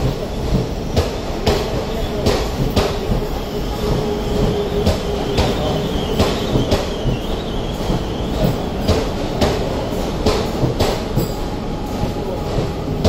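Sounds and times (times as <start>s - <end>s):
train rumble: 0.0s - 13.0s
train wheels clickety-clack: 0.0s - 13.0s
wheel and brake squeal: 3.2s - 8.9s.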